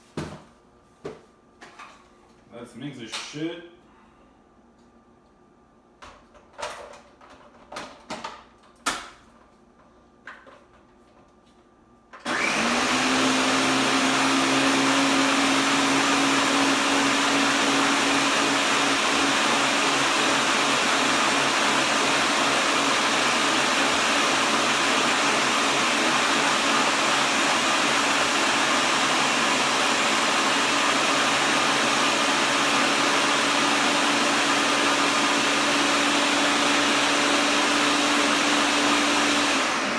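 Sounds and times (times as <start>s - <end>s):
blender motor running: 12.2s - 39.9s.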